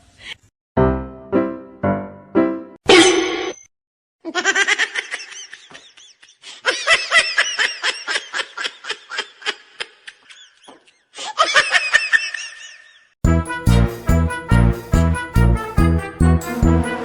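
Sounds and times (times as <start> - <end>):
person laughing hard: 4.3 - 13.0.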